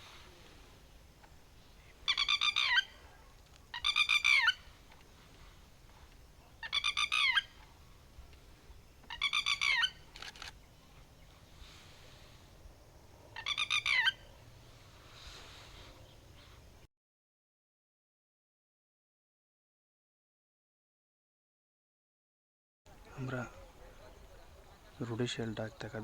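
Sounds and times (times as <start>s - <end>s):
bird call with rapid pulses: 1.8s - 4.9s, 6.5s - 7.8s, 8.7s - 11.8s, 13.2s - 14.5s.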